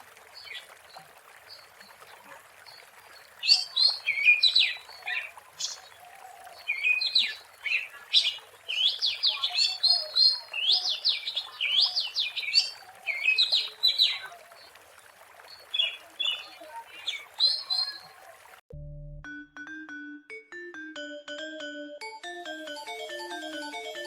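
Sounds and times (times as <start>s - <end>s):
bird singing whistled phrases: 6.4s - 14.4s, 15.8s - 18.2s.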